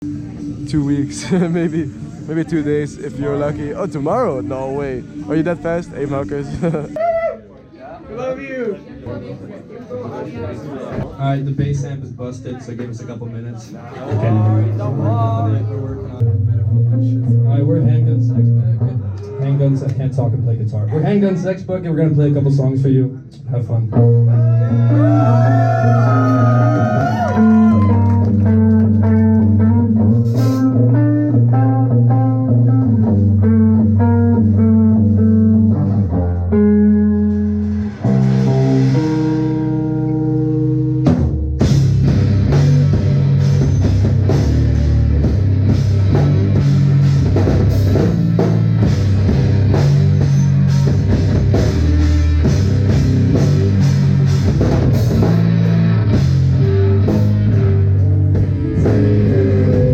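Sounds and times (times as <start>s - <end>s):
guitar and bass riff: 0.0s - 7.0s, 14.1s - 20.6s, 23.7s - 59.9s
drum kit: 23.9s - 59.9s
live rock band playing: 23.9s - 59.9s.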